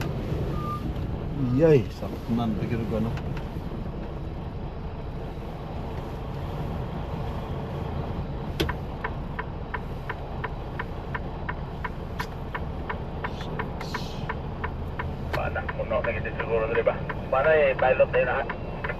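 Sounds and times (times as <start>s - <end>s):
engine and road rumble: 0.0s - 18.9s
turn signal clicking: 8.4s - 18.9s.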